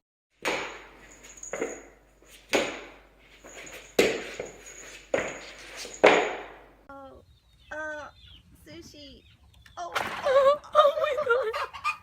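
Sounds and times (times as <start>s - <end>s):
sharp knocks: 0.4s - 1.9s, 2.5s - 3.0s, 3.6s - 6.6s.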